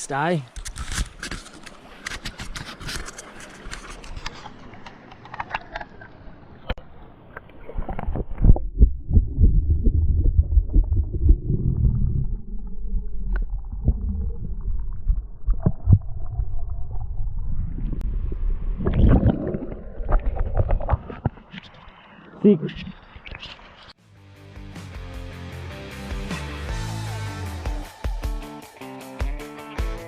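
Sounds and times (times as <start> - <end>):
water splashing: 0.5 - 23.9
underwater rumbling and gurgling: 4.6 - 23.9.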